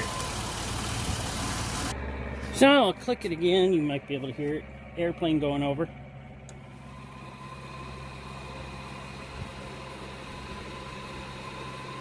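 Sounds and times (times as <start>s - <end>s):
cooling fan whirring: 0.0s - 12.0s.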